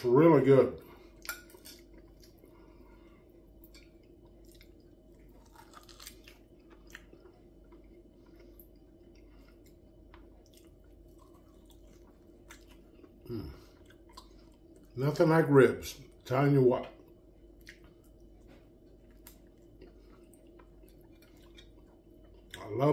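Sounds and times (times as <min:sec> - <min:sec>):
low steady hum: 0:00.0 - 0:22.9
man chewing with mouth clicks: 0:03.5 - 0:15.0, 0:17.0 - 0:22.7.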